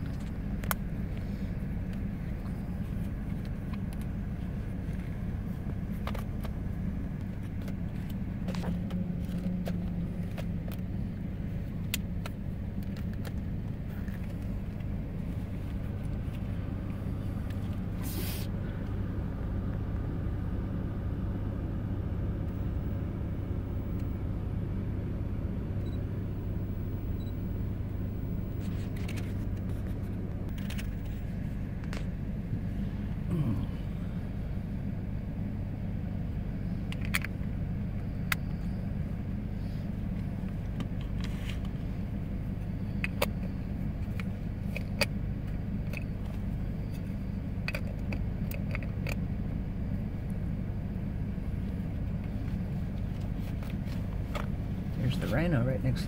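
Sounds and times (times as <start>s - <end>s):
car engine humming: 0.0s - 56.0s
brief hiss: 18.0s - 18.5s.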